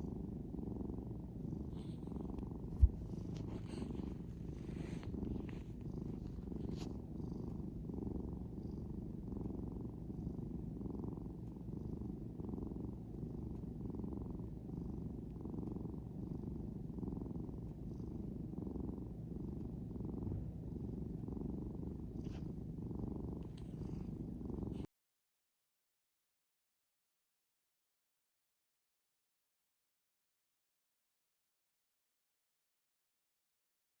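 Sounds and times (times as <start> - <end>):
cat purring: 0.0 - 24.9.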